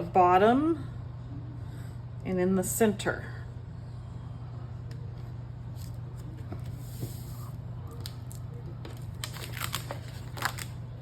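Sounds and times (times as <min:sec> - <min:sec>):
steady low hum: 0:00.0 - 0:11.0
paper rustling and crinkling: 0:05.8 - 0:10.8.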